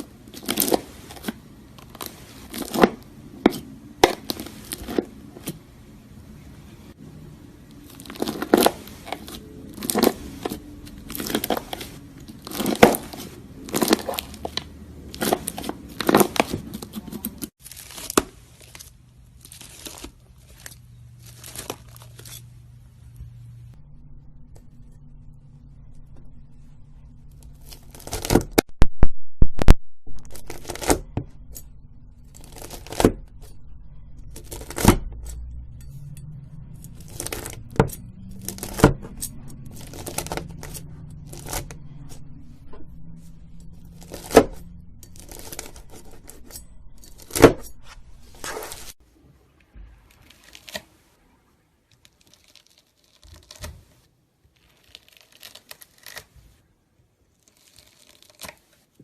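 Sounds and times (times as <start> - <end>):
crunchy slime crackling: 0.0 - 5.6, 7.7 - 22.5, 27.4 - 28.7, 32.2 - 33.2, 36.9 - 42.3, 43.9 - 47.6, 50.0 - 51.1, 51.9 - 56.6, 57.3 - 58.9.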